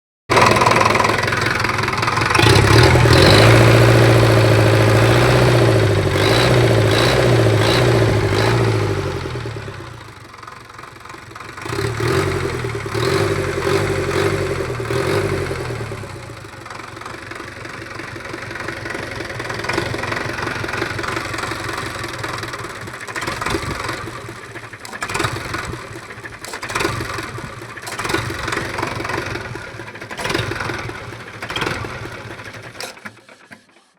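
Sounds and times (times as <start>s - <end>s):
tractor diesel engine running: 0.3s - 33.9s.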